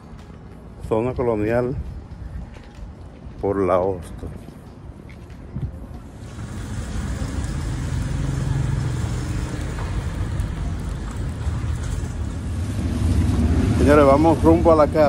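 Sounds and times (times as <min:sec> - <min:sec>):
street traffic noise: 0:00.0 - 0:15.0
vehicle engine rumbling: 0:04.7 - 0:15.0.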